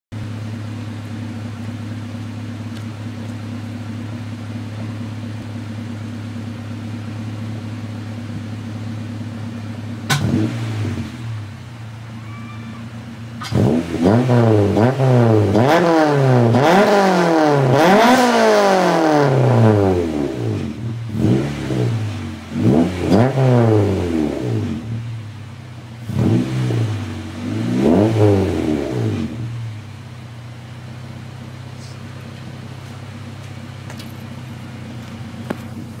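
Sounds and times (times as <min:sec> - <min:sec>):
engine revving and idling: 0:00.1 - 0:36.0.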